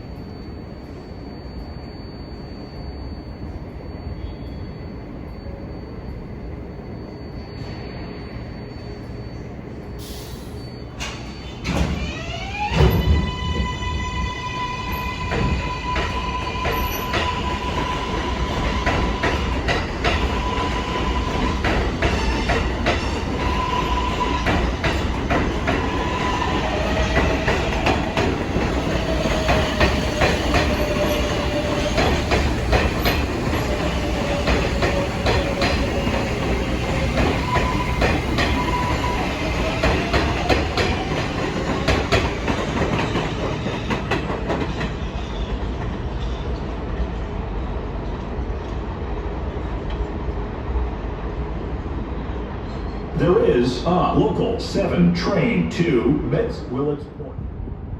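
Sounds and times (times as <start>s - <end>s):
train whining tones: 0.0s - 46.8s
train wheels clattering: 15.0s - 46.7s.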